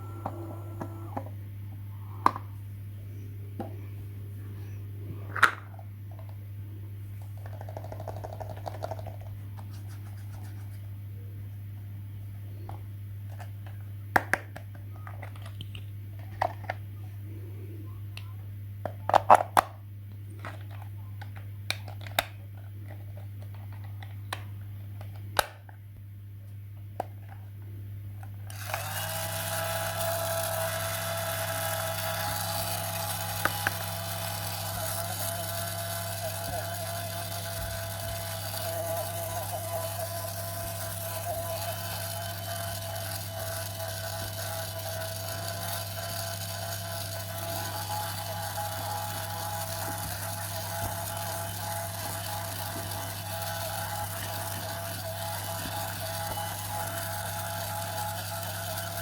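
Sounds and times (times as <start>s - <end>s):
steady low hum: 0.0s - 21.7s
toy motor whining: 28.5s - 59.0s.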